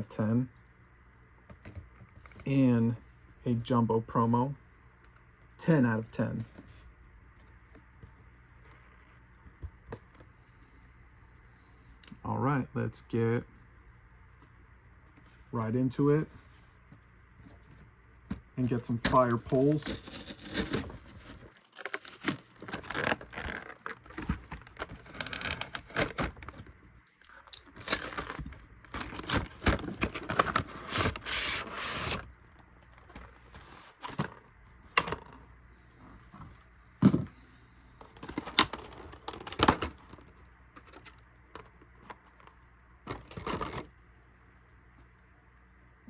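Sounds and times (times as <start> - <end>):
packaging rustling and tearing: 19.3 - 26.6, 27.3 - 32.3.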